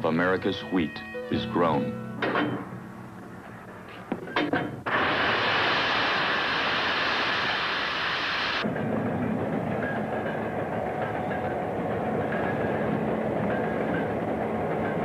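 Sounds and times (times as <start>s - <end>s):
train rumble: 2.6s - 15.0s
train hissing rush: 4.8s - 15.0s.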